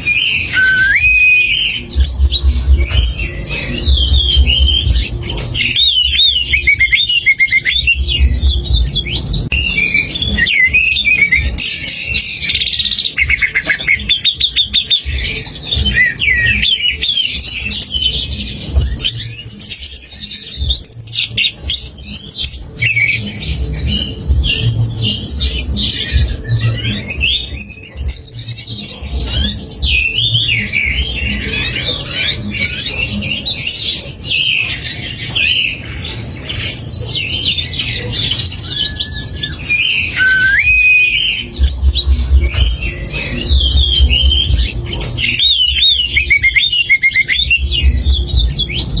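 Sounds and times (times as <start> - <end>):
songbird chirps and trills: 0.0 - 49.0
pulsing low music beat: 0.8 - 28.6, 40.3 - 49.0.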